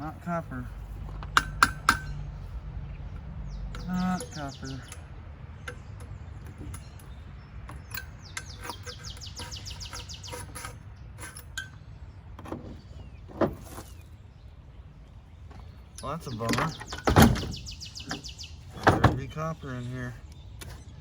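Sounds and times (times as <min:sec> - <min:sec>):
small bird chirping: 0:01.9 - 0:21.0
light clicks of handled parts: 0:03.1 - 0:11.8.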